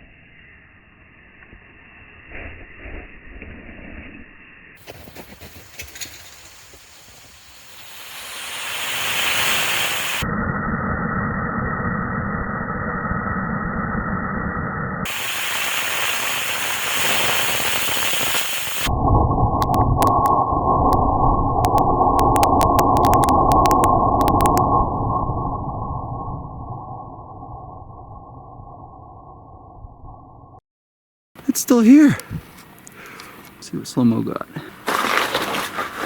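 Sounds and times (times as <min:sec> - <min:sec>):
faint crackles: 0:04.8 - 0:10.2, 0:15.1 - 0:18.9, 0:19.5 - 0:24.7
rocket motor rushing hiss: 0:06.3 - 0:10.2, 0:15.1 - 0:18.9.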